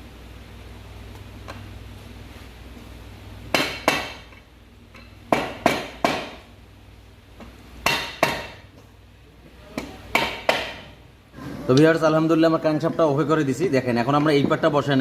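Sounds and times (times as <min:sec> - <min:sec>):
hammer knocking on metal: 0:05.3 - 0:06.4, 0:09.8 - 0:10.9.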